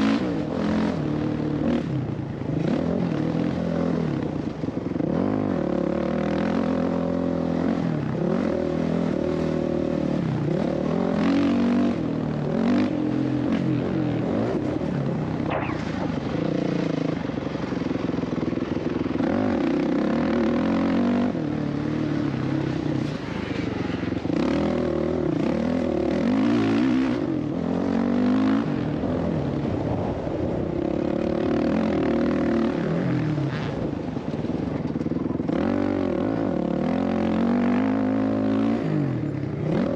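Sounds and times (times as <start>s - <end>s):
dirt bike engine revving: 15.4s - 17.2s.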